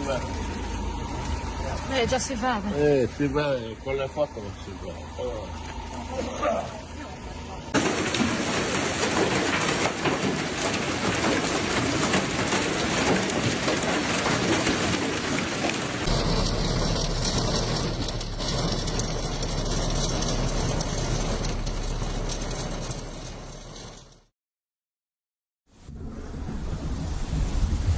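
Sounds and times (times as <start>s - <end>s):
heavy rain on hard surfaces: 7.8s - 24.2s
low steady hum: 16.1s - 24.0s.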